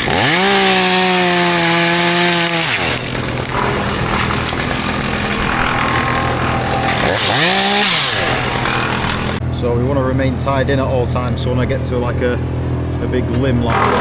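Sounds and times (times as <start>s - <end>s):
chainsaw revving and idling: 0.0s - 9.4s, 13.6s - 14.0s.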